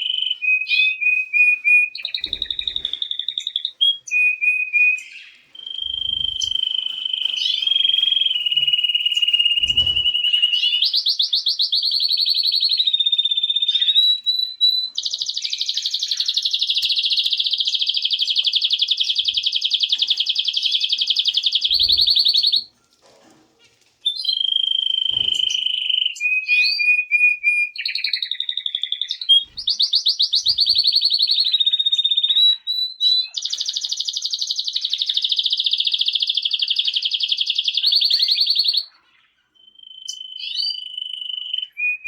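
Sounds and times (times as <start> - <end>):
canary singing trills: 0.0 - 22.7, 23.6 - 42.0.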